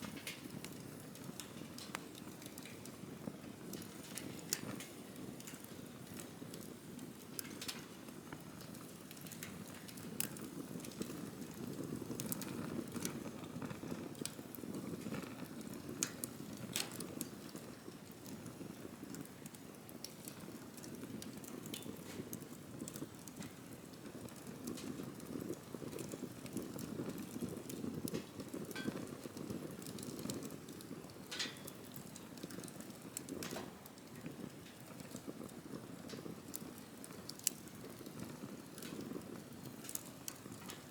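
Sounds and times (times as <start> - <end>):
campfire flames rumbling: 0.0 - 40.9
fire popping and crackling: 0.0 - 40.9.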